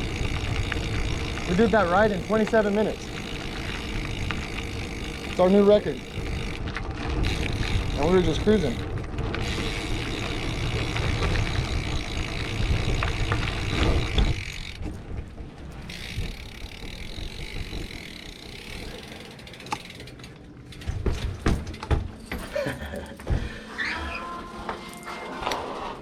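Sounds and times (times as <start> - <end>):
tyre and wind noise: 0.0 - 19.0
bikes rolling: 0.0 - 26.0.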